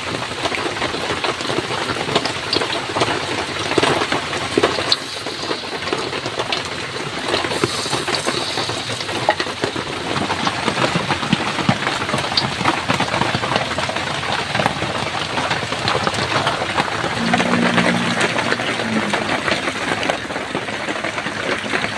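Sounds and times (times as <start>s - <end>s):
heavy rain falling: 0.0s - 21.9s.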